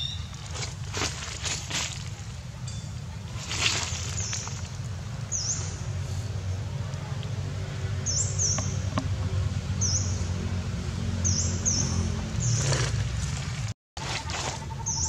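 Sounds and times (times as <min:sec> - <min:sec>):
high-pitched bird chirps: 0:00.0 - 0:00.4, 0:14.5 - 0:15.0.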